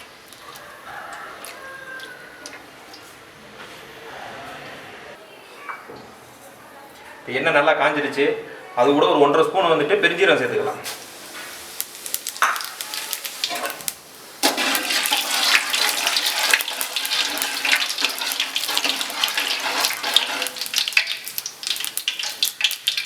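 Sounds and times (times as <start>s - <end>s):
seeds sizzling in hot oil: 10.8s - 23.0s.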